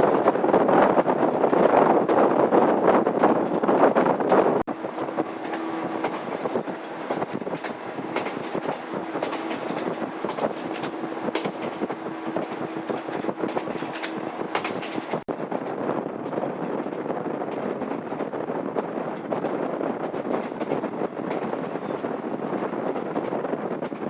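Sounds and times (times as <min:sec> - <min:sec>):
wheels clicking over rail joints: 0:00.0 - 0:18.4
electric train running hum: 0:00.0 - 0:24.0.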